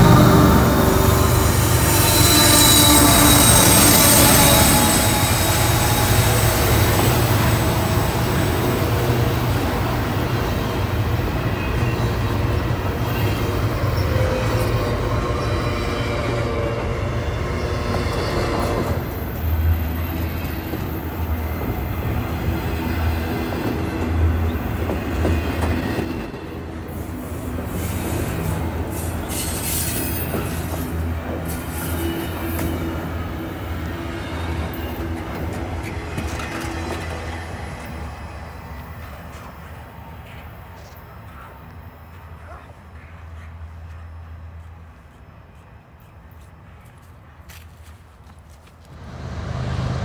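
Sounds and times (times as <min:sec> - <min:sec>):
train wheels rumbling on rails: 0:00.0 - 0:50.0
wheel squeal: 0:00.5 - 0:06.9.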